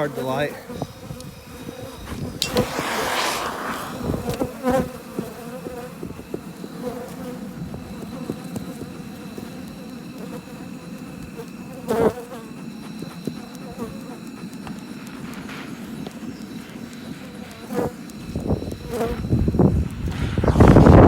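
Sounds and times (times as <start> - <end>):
bees buzzing: 0.0 - 21.0
rush of noise: 2.4 - 4.4, 20.1 - 21.0.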